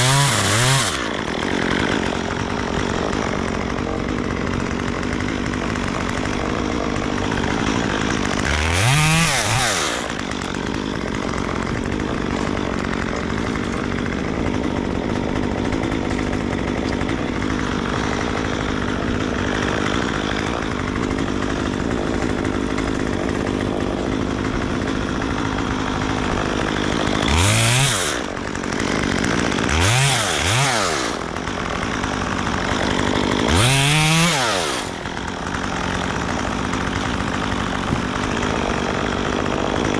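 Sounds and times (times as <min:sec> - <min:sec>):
chainsaw engine revving: 0:00.0 - 0:39.9.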